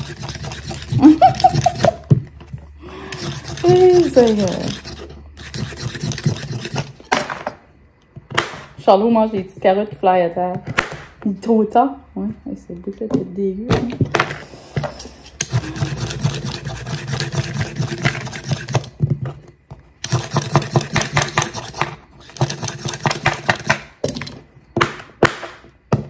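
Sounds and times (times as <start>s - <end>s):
knife chopping carrots on board: 20.1s - 23.9s.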